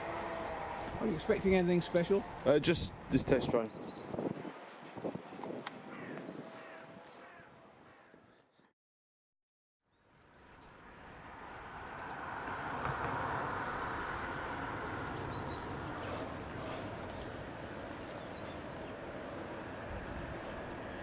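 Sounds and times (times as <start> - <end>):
small birds chirping: 2.1 - 7.4, 9.9 - 19.4
distant train rumble and hiss: 11.0 - 21.0.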